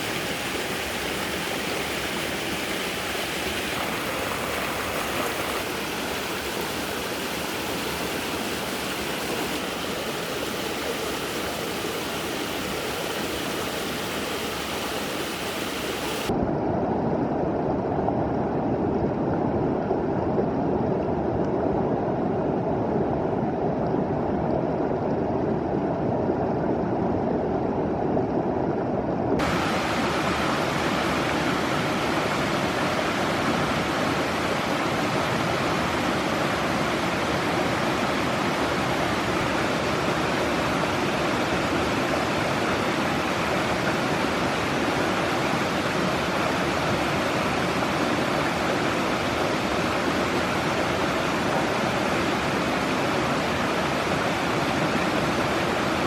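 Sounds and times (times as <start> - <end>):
stream water rushing: 0.0 - 16.4, 29.4 - 56.0.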